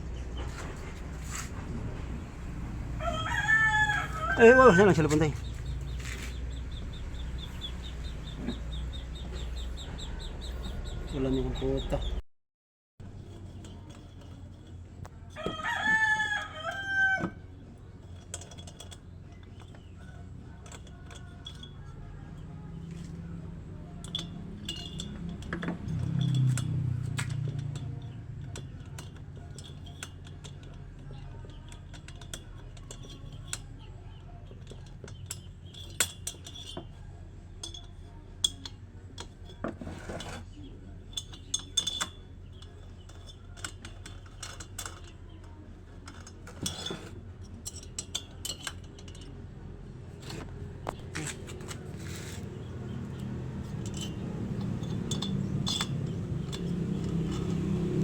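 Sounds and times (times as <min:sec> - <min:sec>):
metallic clinks of hand tools: 0:18.1 - 0:22.2, 0:23.9 - 0:30.8, 0:41.1 - 0:45.2, 0:52.0 - 0:58.0.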